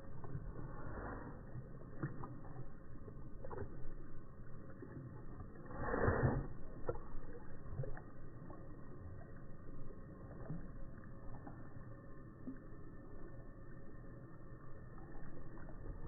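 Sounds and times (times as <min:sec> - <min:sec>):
dog lapping water: 0:00.0 - 0:11.6.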